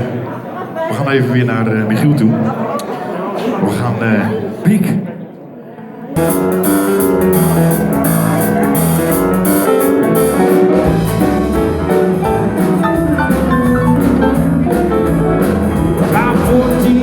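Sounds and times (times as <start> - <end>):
keyboard chords: 6.2 - 17.0
steady drum beat: 6.2 - 17.0.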